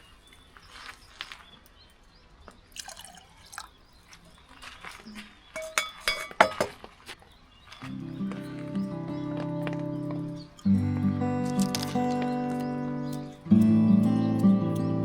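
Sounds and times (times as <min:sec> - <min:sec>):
liquid dripping and splashing: 0:02.8 - 0:03.8
music: 0:07.8 - 0:15.0.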